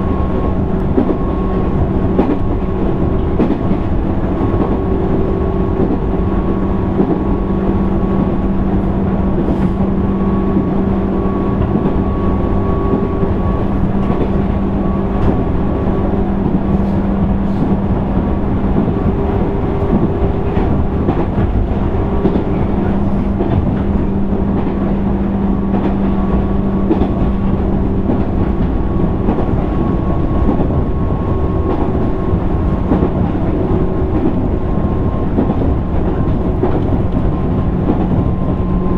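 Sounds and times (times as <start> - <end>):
rail joint clicks: 0.0 - 38.9
train wheels rumbling on rail: 0.0 - 38.9.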